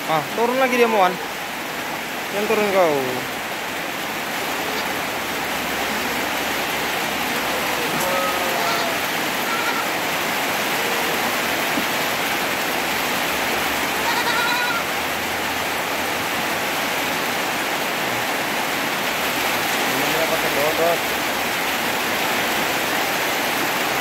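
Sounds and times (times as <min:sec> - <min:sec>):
heavy rain pouring: 0:00.0 - 0:24.0
goat kids bleating: 0:07.3 - 0:10.2, 0:13.9 - 0:15.0.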